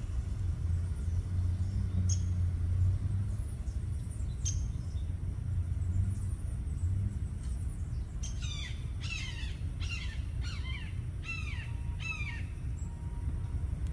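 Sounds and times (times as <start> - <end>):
steady low rumble: 0.0 - 13.9
bird harsh falling calls: 8.2 - 12.6.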